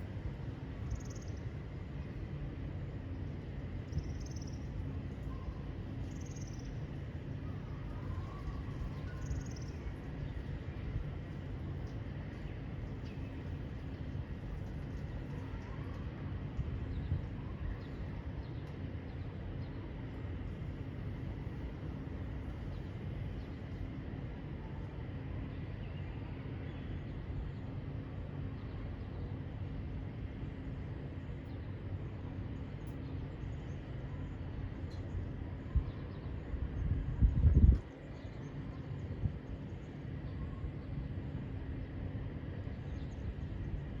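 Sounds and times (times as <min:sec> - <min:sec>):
steady low rumble: 0:29.9 - 0:44.0.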